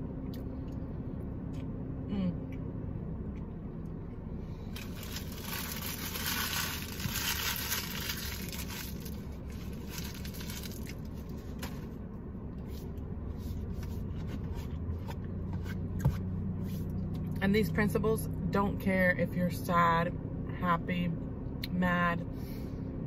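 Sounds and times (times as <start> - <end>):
crinkling rustling hiss: 4.7 - 11.9.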